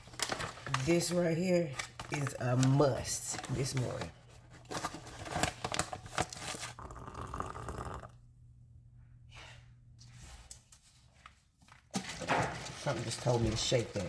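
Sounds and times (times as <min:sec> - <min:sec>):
crinkling and tearing: 0:00.0 - 0:06.8.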